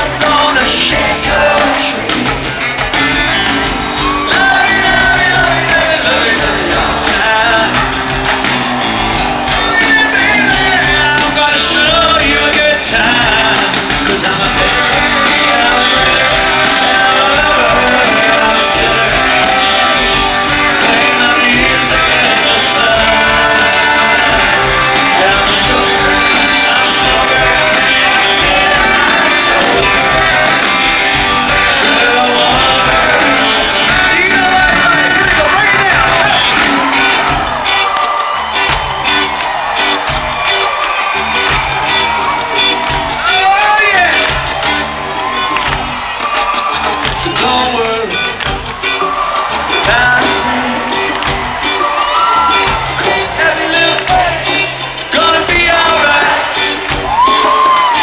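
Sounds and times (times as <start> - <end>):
person singing: 0.0 - 8.0, 9.6 - 37.8, 49.6 - 58.0
country-rock band playing: 0.0 - 58.0
electric guitar: 0.0 - 58.0.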